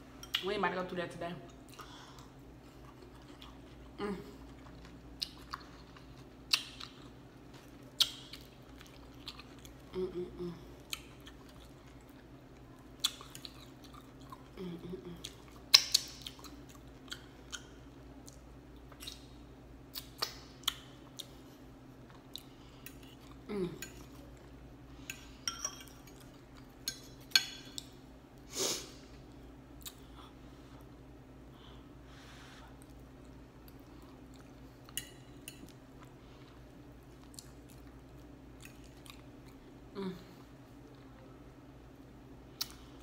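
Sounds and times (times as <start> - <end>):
close-up chewing: 1.5 - 9.9, 10.8 - 14.6.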